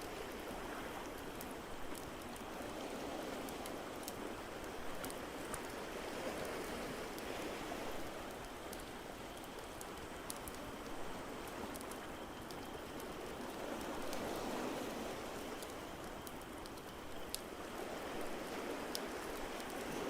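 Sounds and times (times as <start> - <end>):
wood fire crackling and popping: 3.4 - 5.8, 8.3 - 14.2, 15.6 - 17.5.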